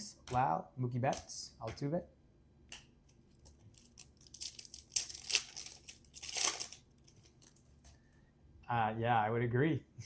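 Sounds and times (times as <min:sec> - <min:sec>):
wrapper crinkling and tearing: 0:03.3 - 0:07.8.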